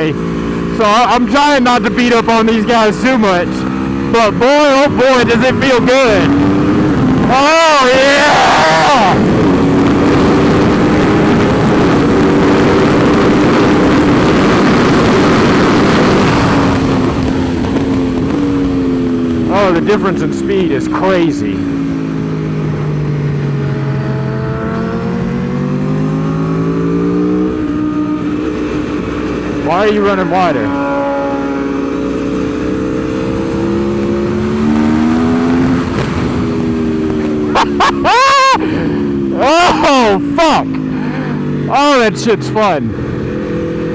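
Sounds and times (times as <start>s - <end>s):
motorcycle engine at high revs: 0.0s - 43.9s
wind rushing: 21.5s - 41.7s.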